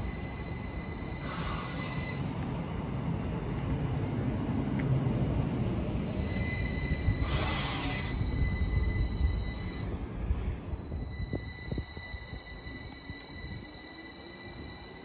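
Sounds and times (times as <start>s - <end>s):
thin high whine: 0.0s - 2.3s, 6.0s - 15.0s
train wheels rumbling: 0.0s - 15.0s.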